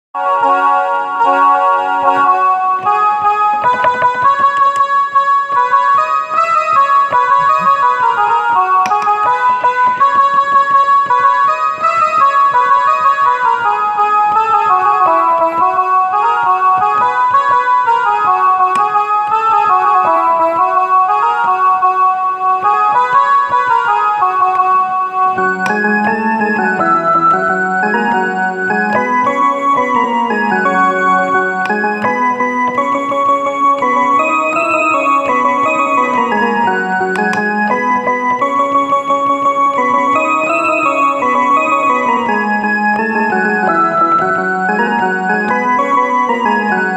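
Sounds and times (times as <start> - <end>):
electronic keyboard melody: 0.2 - 46.9
fast ticking rhythm: 6.7 - 13.4, 25.4 - 46.5.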